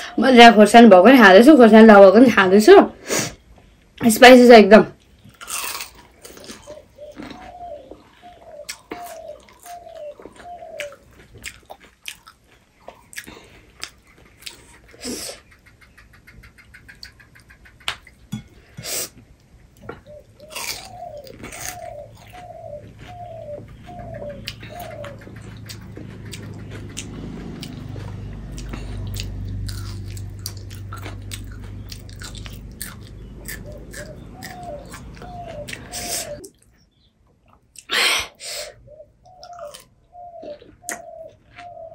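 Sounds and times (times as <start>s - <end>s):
low hum: 19.8s - 36.4s
bird calling rising notes: 20.0s - 36.5s, 38.8s - 41.9s.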